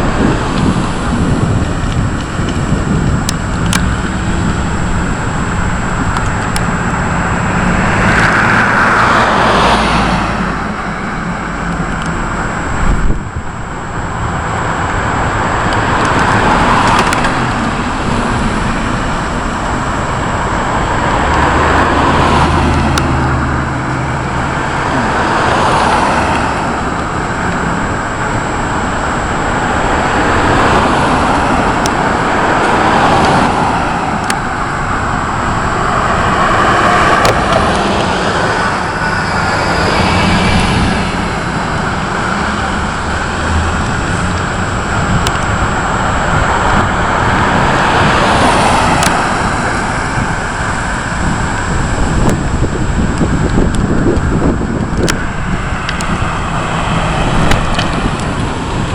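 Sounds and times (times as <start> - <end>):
wind: 0.0 - 58.9
rain: 9.2 - 36.8, 37.5 - 55.2.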